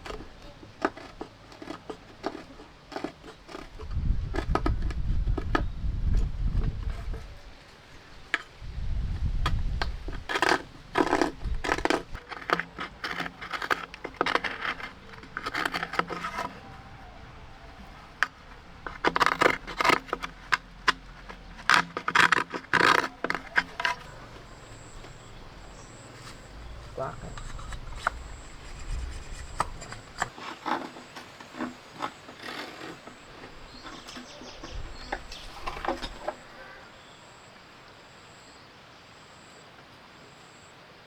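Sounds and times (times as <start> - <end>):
scraping and scratching strokes: 0.0 - 5.7, 6.7 - 36.8.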